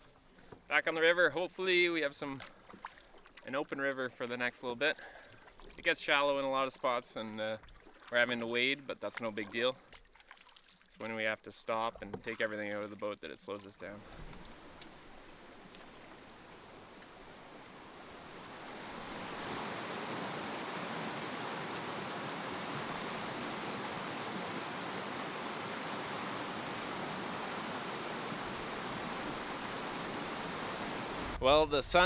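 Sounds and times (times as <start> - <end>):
river water rushing: 14.0 - 31.4.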